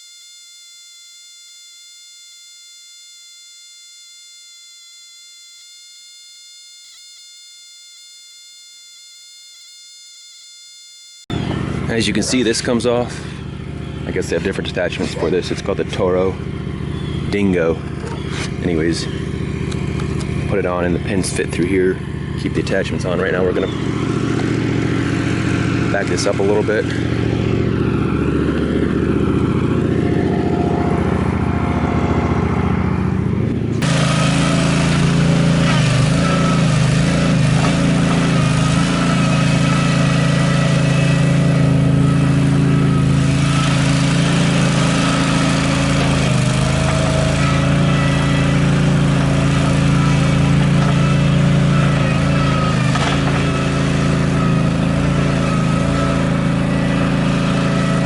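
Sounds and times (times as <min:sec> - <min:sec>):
loader engine running: 0:10.8 - 0:58.0.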